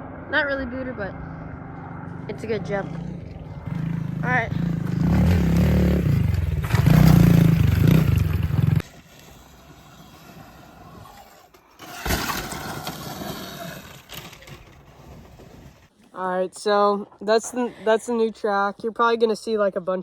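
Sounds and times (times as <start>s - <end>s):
outdoor noise: 0.0s - 20.0s
dirt bike engine running: 0.1s - 9.0s.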